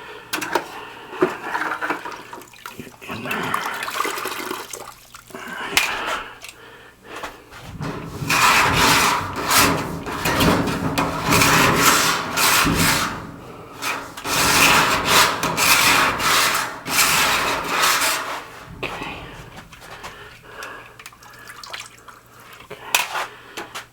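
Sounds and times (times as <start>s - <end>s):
hand scrubbing metal duct: 7.4s - 23.0s.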